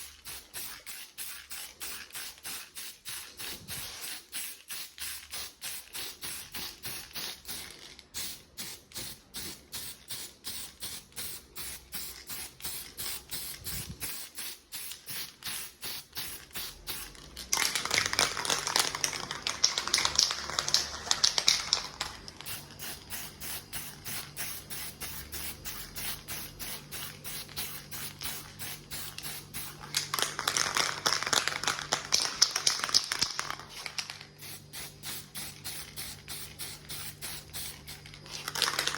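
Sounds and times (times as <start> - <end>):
spray paint can hissing: 0.0 - 17.2, 19.7 - 30.4, 31.6 - 38.9.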